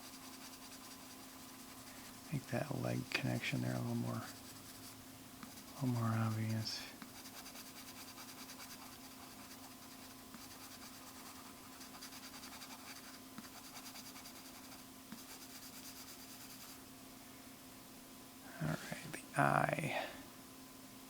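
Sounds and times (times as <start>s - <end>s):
drawing tool scratching on paper: 0.0s - 2.6s, 3.3s - 16.8s
faint steady hum: 0.0s - 21.0s.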